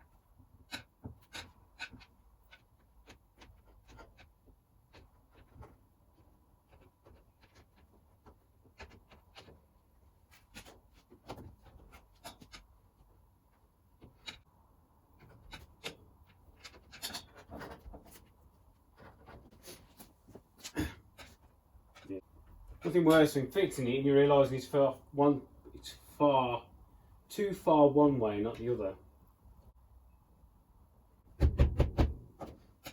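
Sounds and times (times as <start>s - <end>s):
rubbing and scraping of hand work: 0.0s - 23.5s
sharp knocks: 31.3s - 32.5s.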